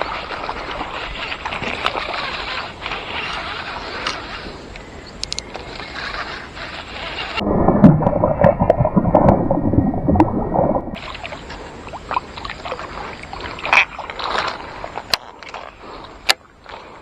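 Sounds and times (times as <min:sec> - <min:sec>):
water sloshing and gurgling: 0:07.0 - 0:16.9.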